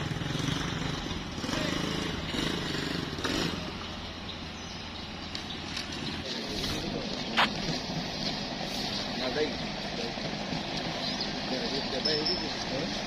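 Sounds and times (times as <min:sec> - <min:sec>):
engine droning: 0:00.0 - 0:13.0
outdoor bustle: 0:00.0 - 0:13.0.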